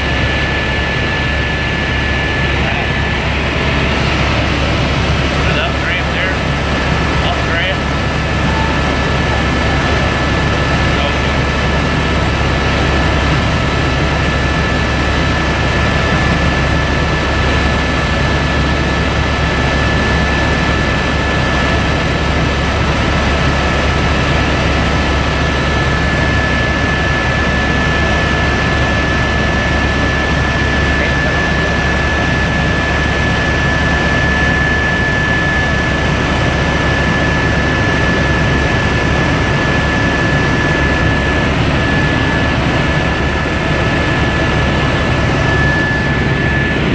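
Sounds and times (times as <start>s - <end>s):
helicopter engine and rotor drone: 0.0s - 46.9s
high steady whine: 0.0s - 46.9s.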